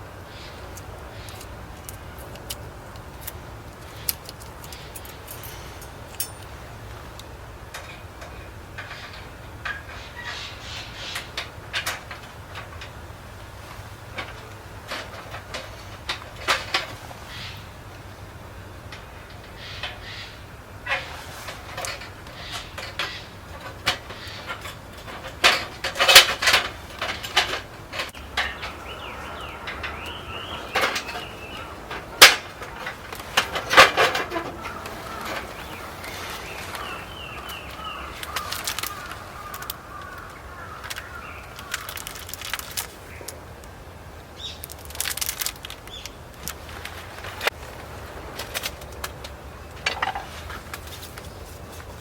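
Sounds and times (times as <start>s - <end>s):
birds calling: 0.0s - 52.0s
sharp knocks and clatter: 20.9s - 36.9s.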